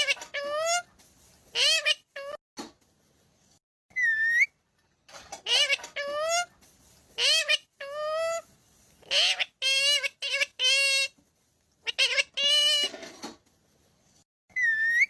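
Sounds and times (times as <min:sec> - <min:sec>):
parrot squawking: 0:00.0 - 0:00.9, 0:01.5 - 0:02.4, 0:03.9 - 0:04.5, 0:05.4 - 0:06.5, 0:07.2 - 0:11.2, 0:11.8 - 0:13.1, 0:14.5 - 0:15.0.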